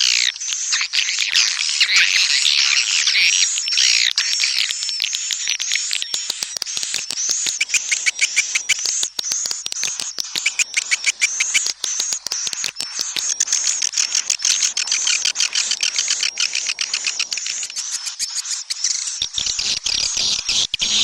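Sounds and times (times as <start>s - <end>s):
swiftlets twittering: 4.7s - 18.6s
rapid rattling clicks: 5.1s - 17.7s.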